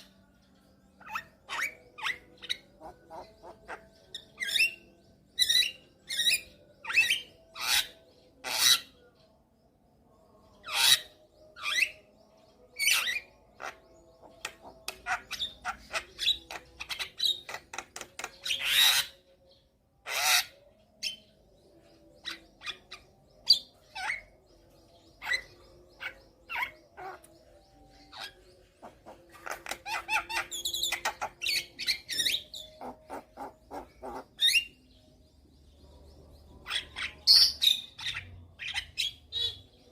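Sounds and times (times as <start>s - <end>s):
rasping bird calls: 28.8s - 34.6s.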